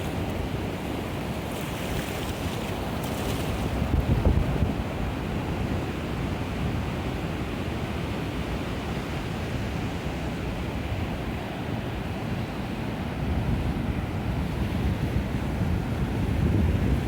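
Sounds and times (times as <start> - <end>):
wind buffeting microphone: 1.9 - 5.6, 13.2 - 17.0.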